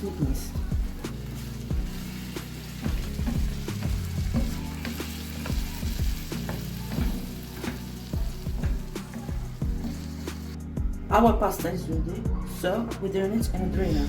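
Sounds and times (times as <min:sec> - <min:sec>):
seafood sizzling in a frying pan: 0:00.0 - 0:10.6
utensil scraping and knocking pan: 0:01.8 - 0:10.4.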